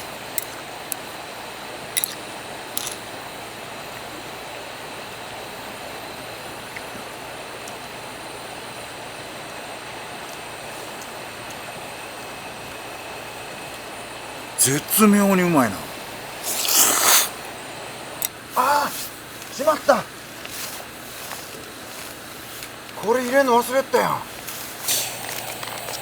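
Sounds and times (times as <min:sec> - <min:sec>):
steady background hiss: 0:00.0 - 0:26.0
short sharp eating sounds: 0:14.6 - 0:17.4.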